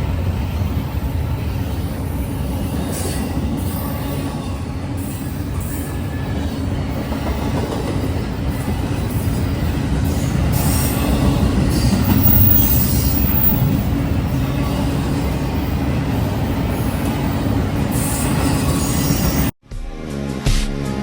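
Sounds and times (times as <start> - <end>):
freight train rumbling on rails: 0.0 - 19.6
high-pitched wheel squeals: 9.1 - 15.7, 16.8 - 19.5.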